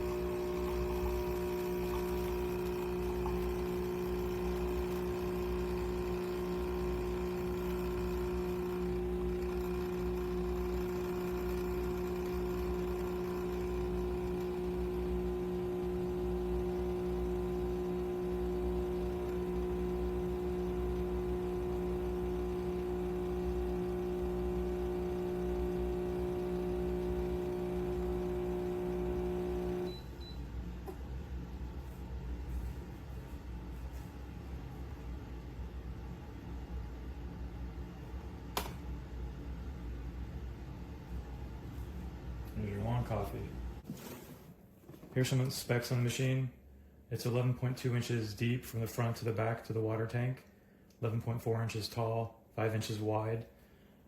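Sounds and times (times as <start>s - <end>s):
espresso machine pump humming: 0.0s - 31.2s.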